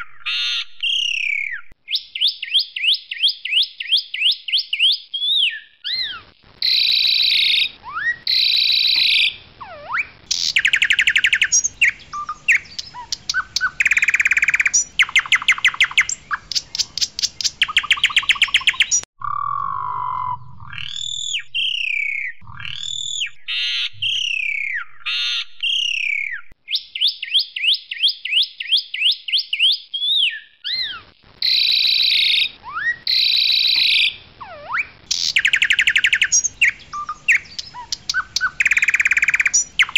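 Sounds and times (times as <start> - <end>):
myna clear gliding whistles: 4.2 - 27.7, 32.0 - 39.9.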